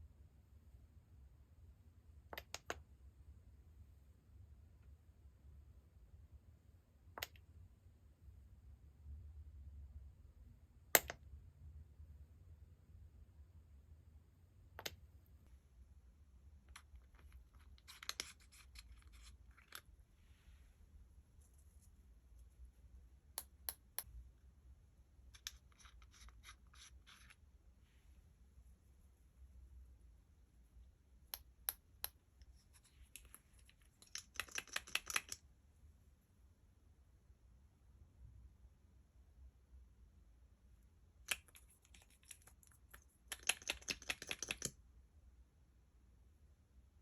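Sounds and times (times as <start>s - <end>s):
small objects clicking: 33.1s - 35.4s, 41.2s - 44.8s.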